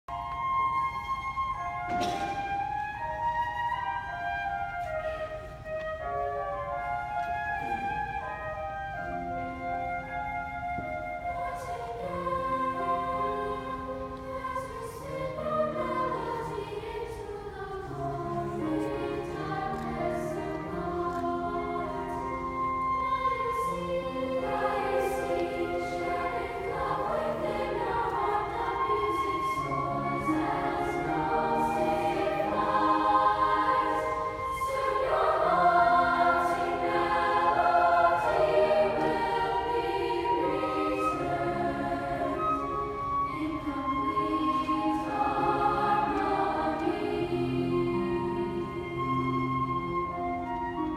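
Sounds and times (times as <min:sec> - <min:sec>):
chorus singing in parts: 0:11.2 - 0:50.9.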